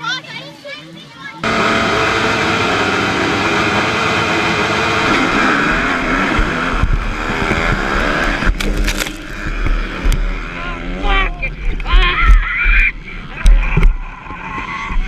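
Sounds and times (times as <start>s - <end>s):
dirt bike engine revving: 1.4s - 11.9s.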